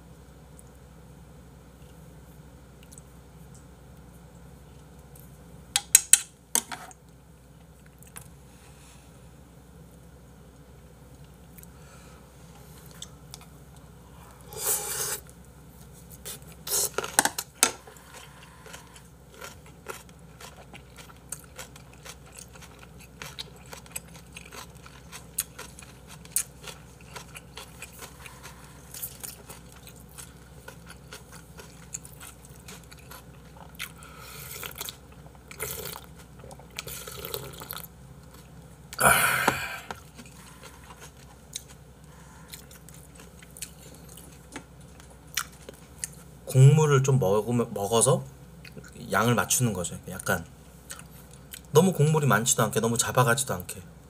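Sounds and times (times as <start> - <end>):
man chewing food: 12.6 - 46.4, 48.6 - 49.0, 50.7 - 51.7.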